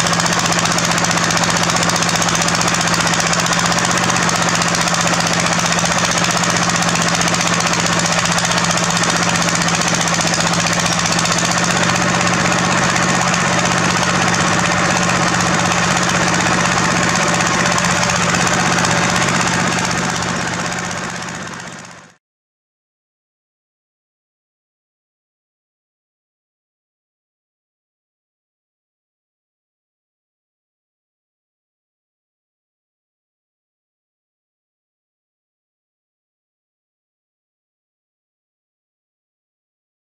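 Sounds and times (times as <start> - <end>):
diesel engine running: 0.0 - 22.2
machinery rattling clatter: 0.0 - 22.2.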